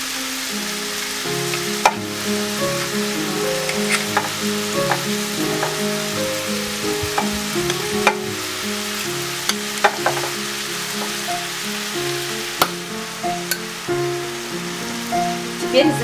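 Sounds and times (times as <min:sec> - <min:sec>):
soft background music: 0:00.0 - 0:16.0
vegetables sizzling in oil: 0:00.0 - 0:16.0
metal spoon knocking on saucepan: 0:01.8 - 0:02.1, 0:03.7 - 0:08.4, 0:09.5 - 0:10.4.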